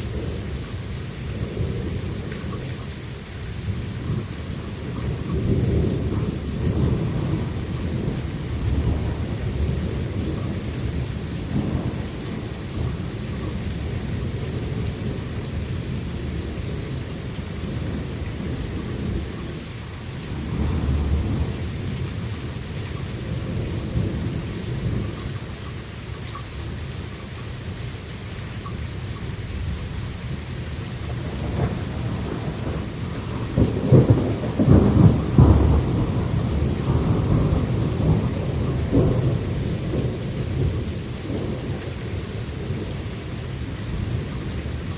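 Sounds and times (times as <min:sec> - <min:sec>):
rain: 0:00.0 - 0:44.9
thunder rumbling: 0:03.6 - 0:19.6, 0:20.3 - 0:25.2, 0:29.6 - 0:44.9
cracking thunder: 0:04.9 - 0:19.6, 0:20.3 - 0:22.3, 0:31.0 - 0:44.9.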